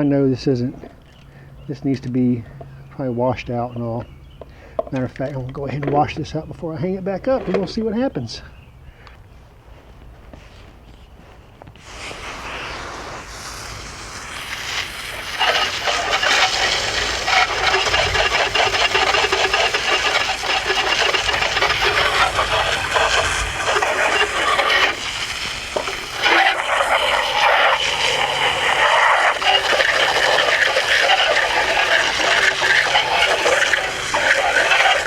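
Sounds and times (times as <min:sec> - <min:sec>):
water spraying and splashing: 0:11.8 - 0:35.0.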